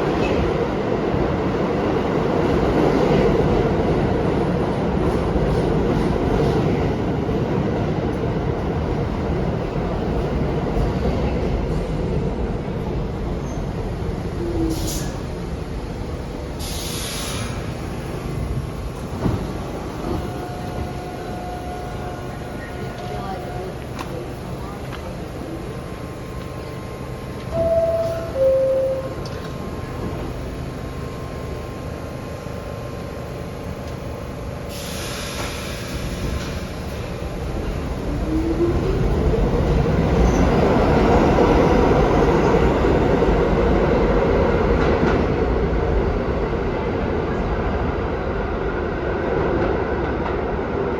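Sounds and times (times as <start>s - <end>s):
subway train rumble: 0.0s - 50.9s
loud hiss of air: 14.7s - 15.4s, 16.4s - 19.8s, 34.6s - 37.4s.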